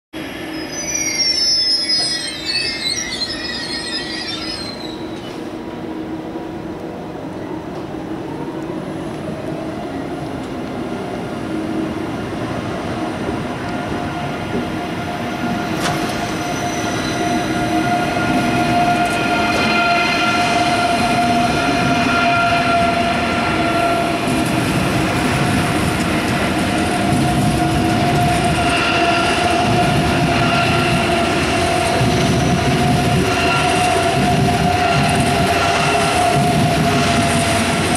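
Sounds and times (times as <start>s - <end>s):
train wheel squeal: 0.2s - 5.7s, 13.4s - 37.9s
electric train whine: 0.2s - 37.9s
train rolling noise: 0.2s - 37.9s.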